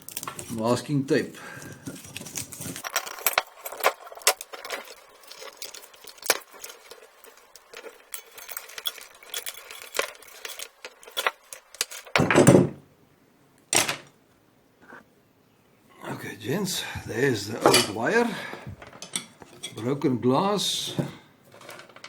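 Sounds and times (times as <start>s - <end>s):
rustling: 0.0s - 12.7s, 20.7s - 22.0s
light clicks and metallic clinks: 2.8s - 12.2s, 17.6s - 20.0s.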